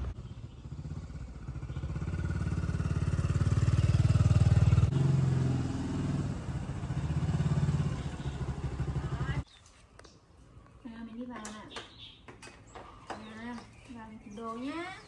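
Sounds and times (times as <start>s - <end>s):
motorbike engine running: 0.0s - 9.4s.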